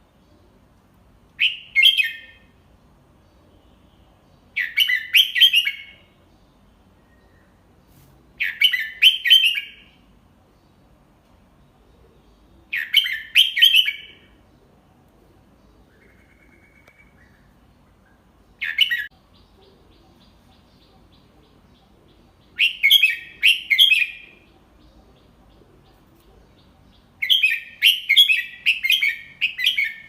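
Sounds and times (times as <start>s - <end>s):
bird singing whistled notes: 1.4s - 2.5s, 4.5s - 6.2s, 8.4s - 10.0s, 12.7s - 14.4s, 15.8s - 21.2s, 21.8s - 24.6s, 26.6s - 30.0s.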